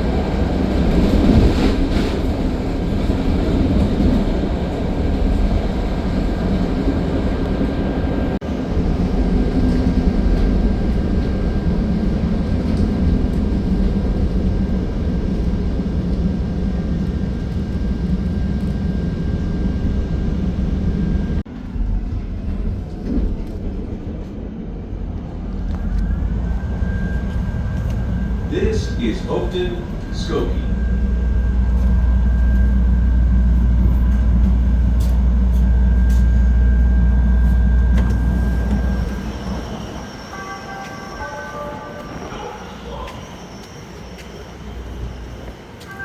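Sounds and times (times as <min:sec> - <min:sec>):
train rumble inside car: 0:00.0 - 0:46.0
thin steady whine: 0:25.9 - 0:39.1.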